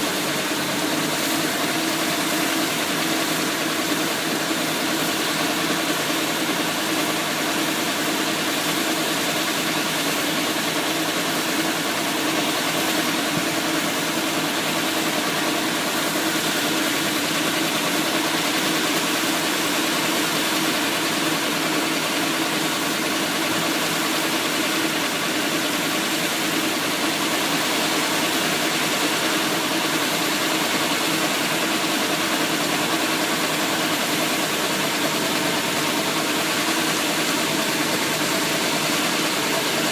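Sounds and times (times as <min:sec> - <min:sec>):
truck engine running steadily: 0:00.0 - 0:39.9.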